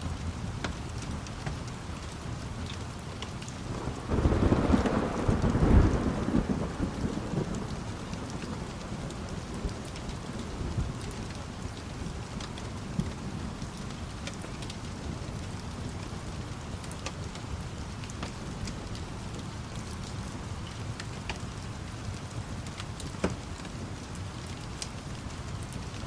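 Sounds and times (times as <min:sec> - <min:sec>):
steady rain: 0:00.0 - 0:26.0
thunder rumbling: 0:03.7 - 0:11.0.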